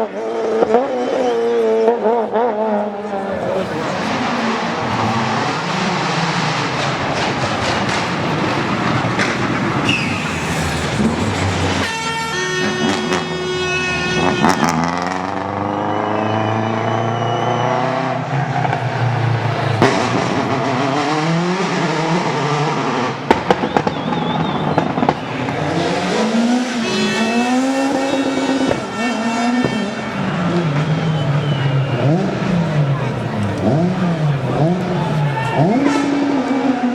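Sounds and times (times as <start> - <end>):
rally car engines revving: 0.0 - 36.9
exhaust pops and cracks: 5.2 - 11.8, 23.3 - 26.5.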